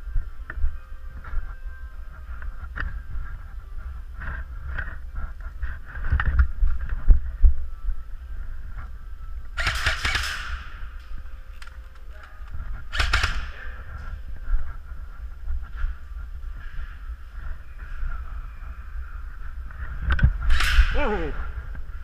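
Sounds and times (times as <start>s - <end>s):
low rumble: 0.0s - 22.0s
wind and handling knocks on microphone: 4.2s - 7.3s, 19.6s - 20.8s
airsoft gunfire bursts: 9.6s - 10.6s, 12.9s - 13.6s.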